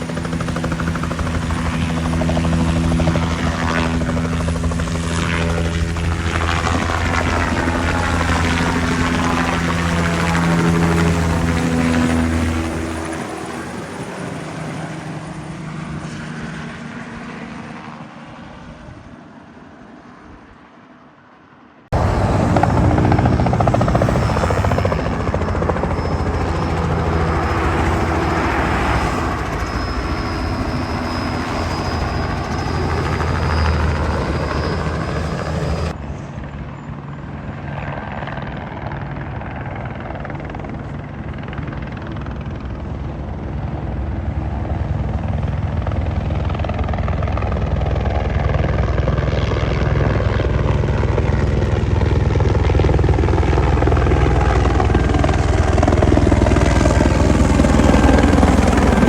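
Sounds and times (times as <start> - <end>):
helicopter rotor: 0.0 - 20.7, 21.4 - 59.0
turbine whine: 22.0 - 36.0, 50.1 - 59.0.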